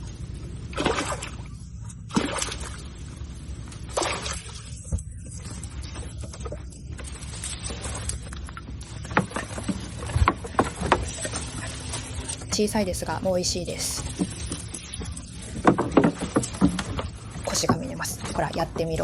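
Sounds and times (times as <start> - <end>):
shallow water sloshing: 0.0 - 19.0
sharp water splashes: 0.7 - 3.1, 3.8 - 4.8.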